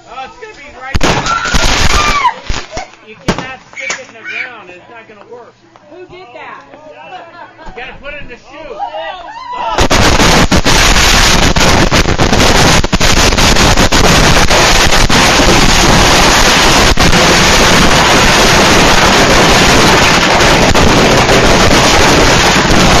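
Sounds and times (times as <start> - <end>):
fireworks bangs and crackling: 0.8 - 4.2, 9.7 - 23.0.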